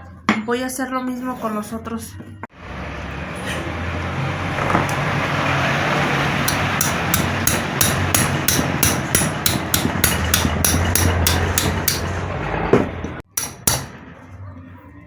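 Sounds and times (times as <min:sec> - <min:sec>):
hammer striking metal bolt: 0:06.4 - 0:14.0.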